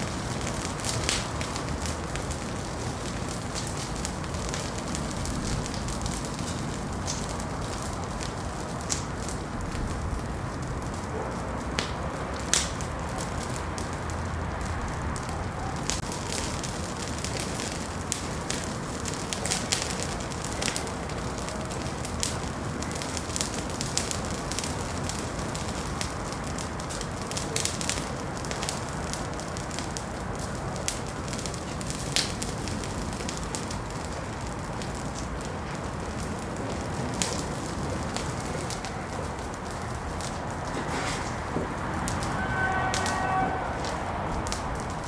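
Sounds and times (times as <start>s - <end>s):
wood fire crackling and popping: 0.0s - 45.0s.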